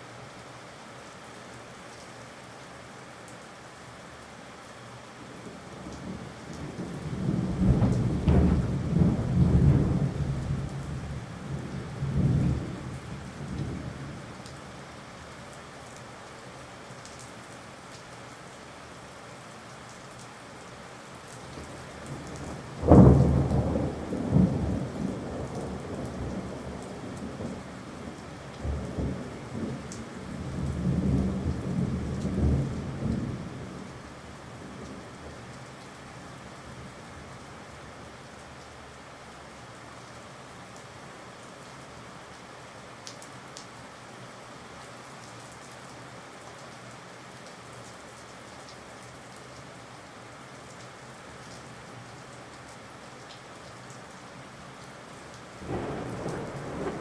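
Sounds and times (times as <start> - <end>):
steady rain: 0.0 - 57.0
thunder rumbling: 6.1 - 14.0, 22.5 - 33.5, 55.6 - 57.0
sharp thunderclap: 7.3 - 10.6, 55.6 - 57.0.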